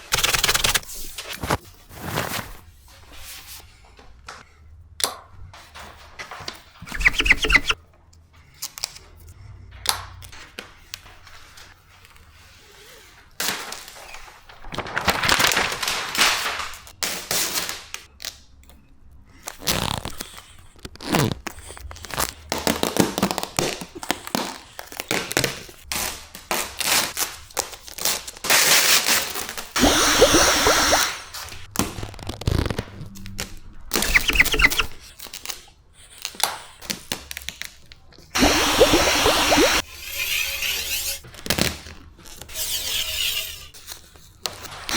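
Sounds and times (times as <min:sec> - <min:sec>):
vinyl film crackling and rustling: 0:13.4 - 0:17.0, 0:31.5 - 0:35.6.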